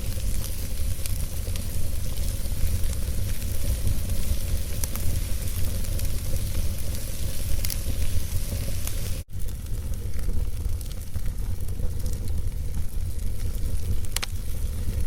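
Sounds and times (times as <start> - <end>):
fire crackling and popping: 0.0 - 15.0
low rumble and hiss of fire: 0.0 - 15.0.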